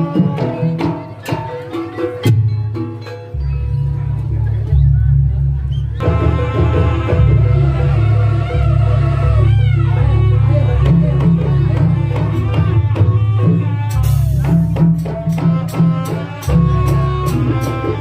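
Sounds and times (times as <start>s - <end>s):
live folk dance band: 3.9s - 18.0s.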